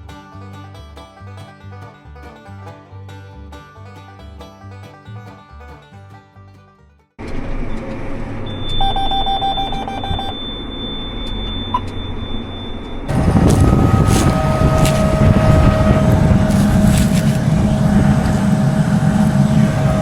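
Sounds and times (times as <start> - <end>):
alert beeps: 8.5 - 13.1
tractor engine under load: 12.8 - 20.0.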